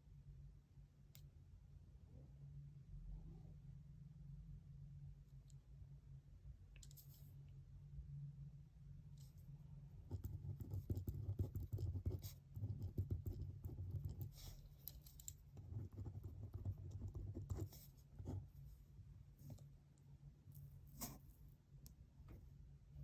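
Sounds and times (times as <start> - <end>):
pen scratching on paper: 10.0 - 14.7, 15.6 - 18.5.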